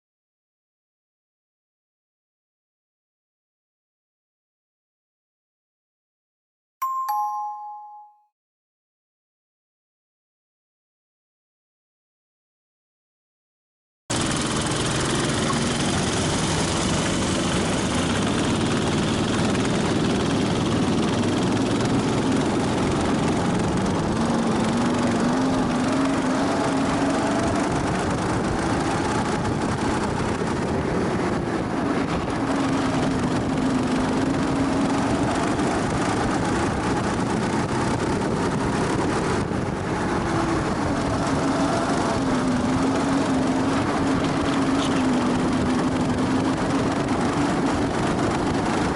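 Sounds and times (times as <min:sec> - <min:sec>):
go-kart engine: 0:14.1 - 0:48.9
wind and road noise: 0:14.1 - 0:48.9.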